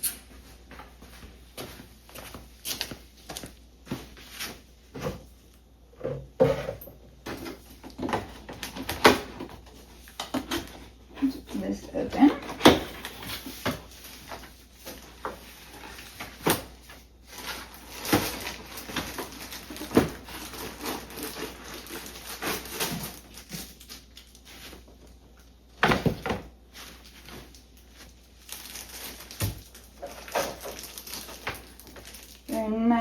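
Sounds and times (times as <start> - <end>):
cardboard packaging rustling: 7.2 - 32.6.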